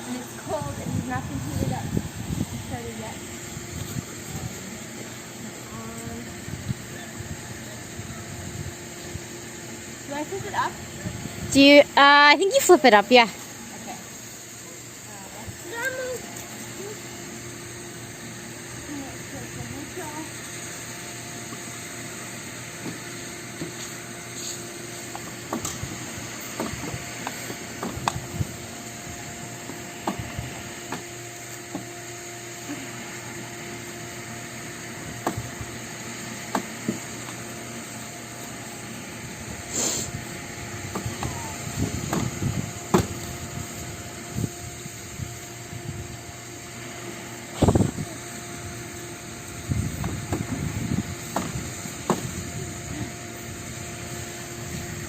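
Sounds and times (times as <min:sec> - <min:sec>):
steady hiss: 0:35.8 - 0:45.6.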